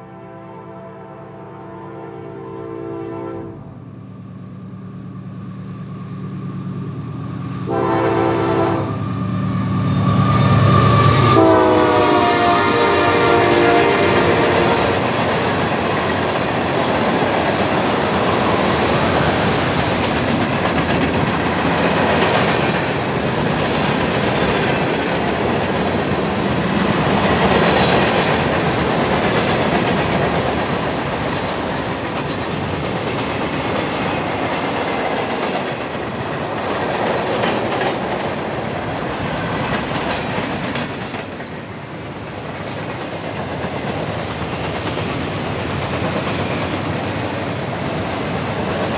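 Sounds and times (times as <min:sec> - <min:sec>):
train wheels clacking over rail joints: 0:11.3 - 0:41.6.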